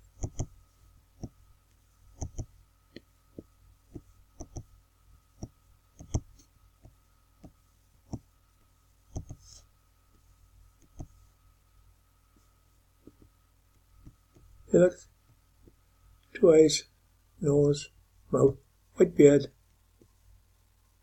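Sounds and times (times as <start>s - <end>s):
faint electrical hum: 0.0s - 21.0s
computer mouse clicking: 0.2s - 0.6s, 2.2s - 3.1s, 4.0s - 4.7s, 5.4s - 6.4s, 9.1s - 9.5s, 10.8s - 11.2s.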